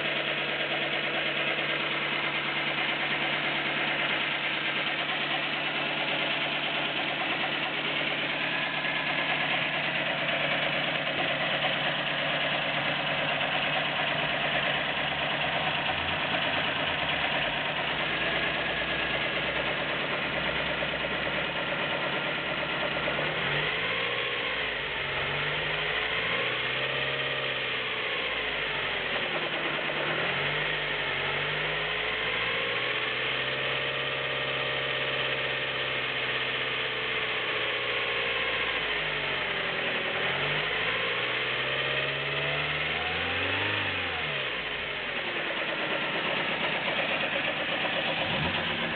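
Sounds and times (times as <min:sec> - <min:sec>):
car engine idling: 0:00.0 - 0:48.9
engine revving: 0:00.0 - 0:48.9.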